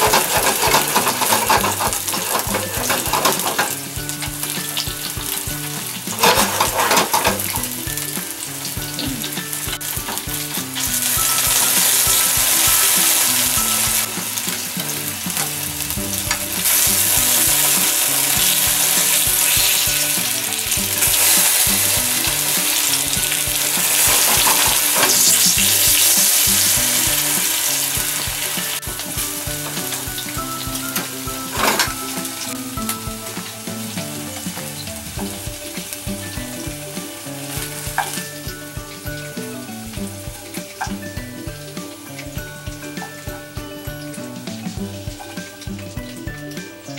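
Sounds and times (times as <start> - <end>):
chopsticks clicking against pan: 0.0 - 5.2
food sizzling in oil: 0.0 - 46.9.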